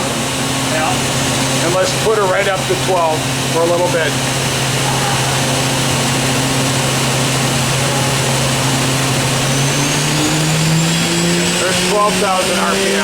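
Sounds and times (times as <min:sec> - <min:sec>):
machine spindle hum and whine: 0:00.0 - 0:13.0.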